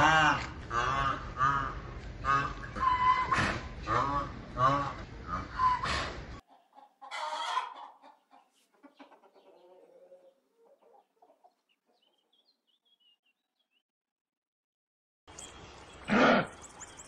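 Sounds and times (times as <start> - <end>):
chickens clucking: 0.0 - 12.5
small birds chirping: 7.8 - 13.8, 15.3 - 17.0.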